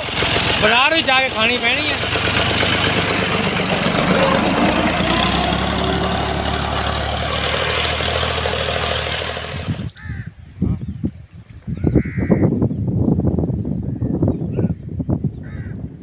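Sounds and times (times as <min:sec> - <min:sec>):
tractor engine running: 0:00.0 - 0:10.0
crows cawing: 0:10.0 - 0:10.3, 0:12.0 - 0:12.5, 0:15.4 - 0:15.8.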